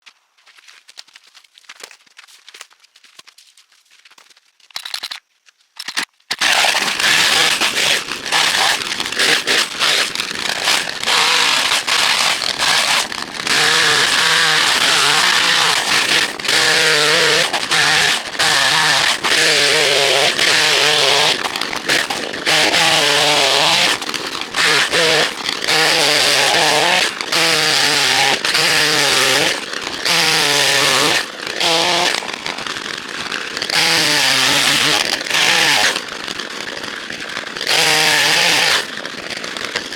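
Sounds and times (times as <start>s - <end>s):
faint crackles: 0.0s - 39.9s
chainsaw cutting wood: 5.8s - 39.9s.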